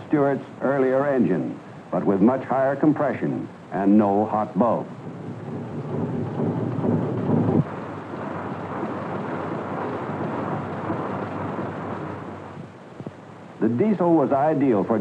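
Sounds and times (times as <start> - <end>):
deep evenly pitched hum: 1.0 - 14.4
diesel engine rumbling: 3.5 - 14.5.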